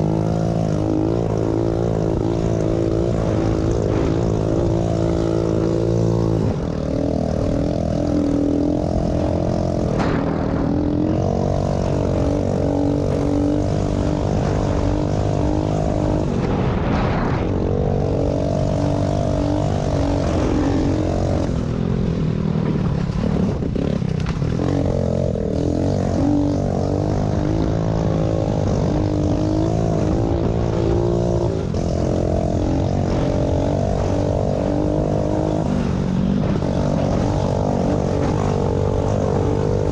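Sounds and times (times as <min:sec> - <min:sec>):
small motorbike engine revving: 0:23.0 - 0:39.9.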